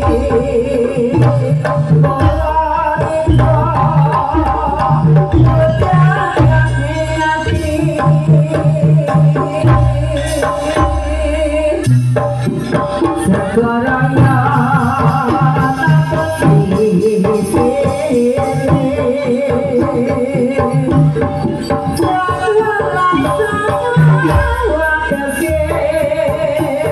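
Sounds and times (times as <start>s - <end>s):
person singing: 0.0s - 12.0s, 13.1s - 26.9s
wavering melody line: 0.0s - 15.0s
hand drums beating: 0.0s - 26.9s.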